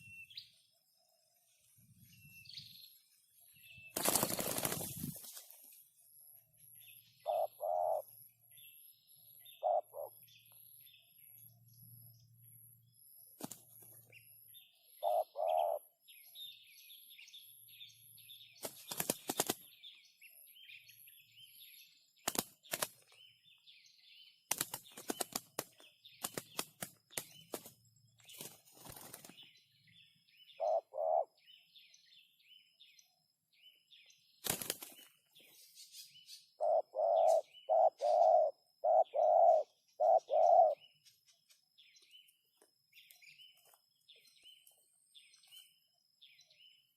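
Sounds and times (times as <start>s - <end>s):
wings flapping or rustling: 3.9s - 5.8s, 13.4s - 14.0s, 18.6s - 19.6s, 22.2s - 23.2s, 24.5s - 29.5s, 34.4s - 35.2s
high bird chirping: 6.7s - 11.6s, 14.1s - 18.0s, 35.4s - 46.9s
low two-part bird calls: 7.2s - 8.1s, 9.4s - 10.6s, 14.9s - 16.0s, 30.5s - 31.4s, 36.2s - 41.0s.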